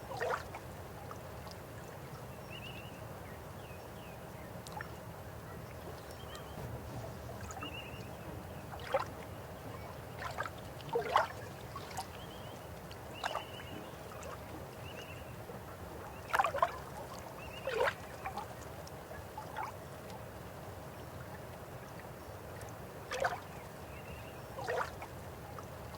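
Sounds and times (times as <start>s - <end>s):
water gurgles and plops: 6.0s - 14.8s.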